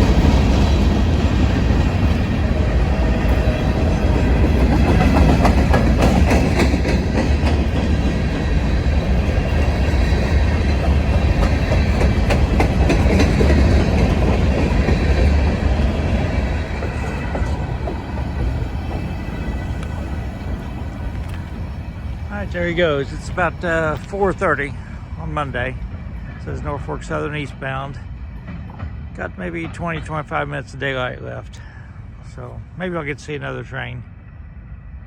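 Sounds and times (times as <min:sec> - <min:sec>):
wheels clicking over rail joints: 0:00.0 - 0:26.1
freight train rumbling past: 0:00.0 - 0:35.0.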